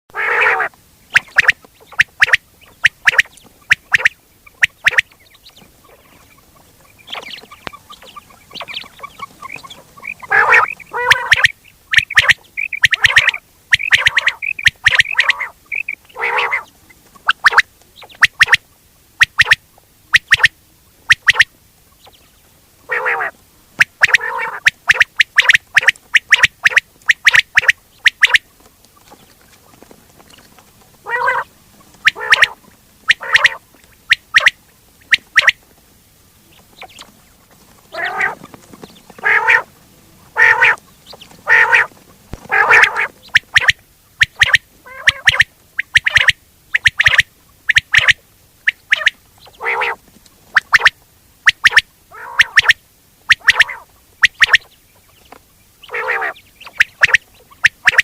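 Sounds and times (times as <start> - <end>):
quail lure call notes: 0.1 - 21.6, 22.9 - 28.5, 31.0 - 35.6, 37.9 - 38.5, 39.1 - 39.7, 40.3 - 54.7, 55.8 - 58.0.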